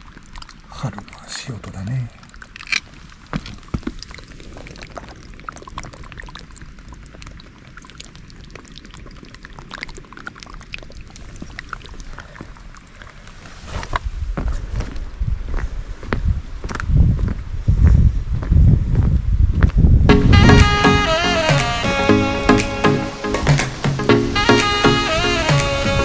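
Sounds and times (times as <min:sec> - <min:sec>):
water drips and splashes: 0:00.0 - 0:01.3, 0:02.2 - 0:14.0
low thumps: 0:20.1 - 0:26.0.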